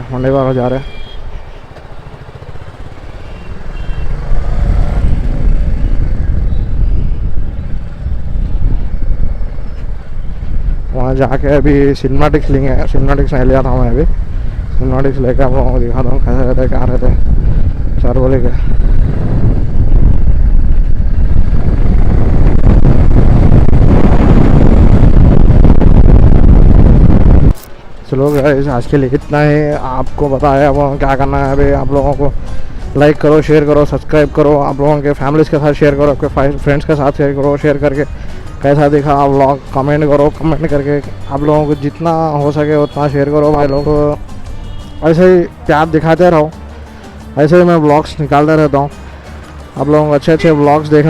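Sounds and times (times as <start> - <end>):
motorcycle engine and road rumble: 0.0 - 51.0
motorcycle engine running: 0.8 - 10.8
wind rumble on microphone: 3.9 - 27.7.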